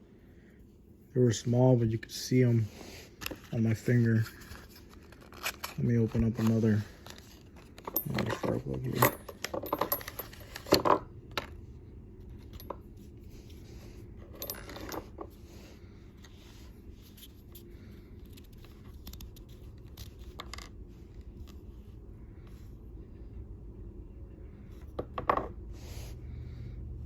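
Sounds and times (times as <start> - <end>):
packaging rustling: 3.2 - 8.0.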